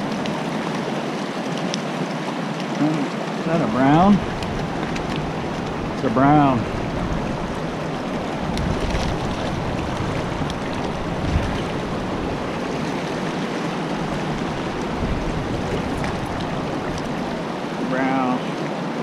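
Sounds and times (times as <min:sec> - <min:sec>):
creek water rushing over rocks: 0:00.0 - 0:19.0.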